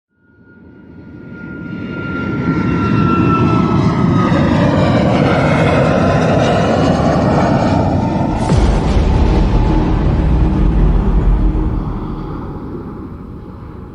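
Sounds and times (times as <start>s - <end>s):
engine drone with faint whine: 3.4s - 13.9s.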